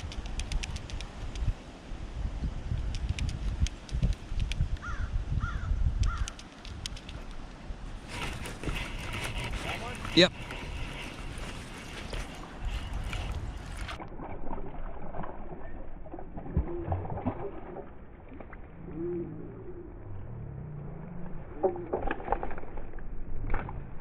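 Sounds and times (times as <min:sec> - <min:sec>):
bird cooing: 0:18.8 - 0:20.1.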